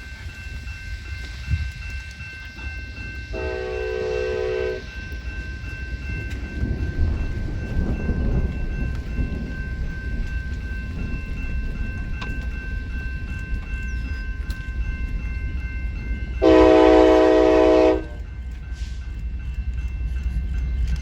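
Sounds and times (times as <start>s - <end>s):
train rumbling: 0.0s - 21.0s
locomotive horn blast: 3.3s - 4.8s, 16.4s - 18.2s.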